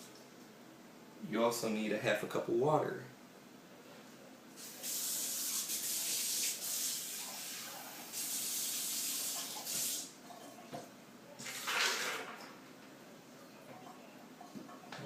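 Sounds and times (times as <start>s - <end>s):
water running into a cup: 4.6s - 10.1s, 11.4s - 12.5s.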